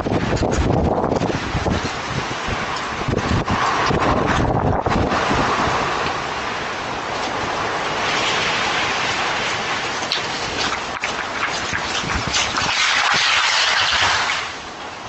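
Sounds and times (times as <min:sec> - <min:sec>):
wind buffeting microphone: 0:00.0 - 0:15.0
crackles: 0:05.9 - 0:14.8.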